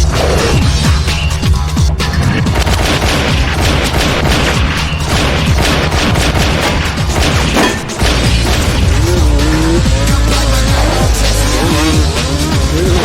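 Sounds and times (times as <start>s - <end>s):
film music: 0.0s - 13.0s
heavy low rumble: 0.0s - 13.0s
crashes and booms: 2.4s - 10.2s.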